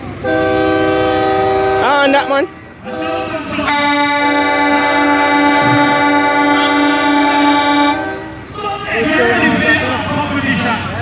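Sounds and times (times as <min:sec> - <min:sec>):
truck air horn chord: 0:00.2 - 0:01.8, 0:02.9 - 0:08.5.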